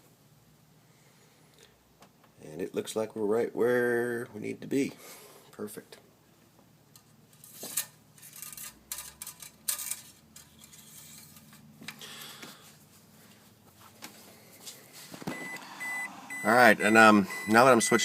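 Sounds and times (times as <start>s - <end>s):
metal parts clinking and rattling: 7.3s - 11.6s.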